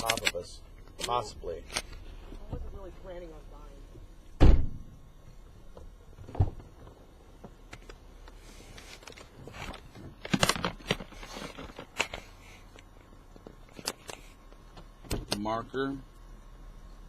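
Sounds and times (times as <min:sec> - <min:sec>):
heavy thump: 0:04.4 - 0:05.0.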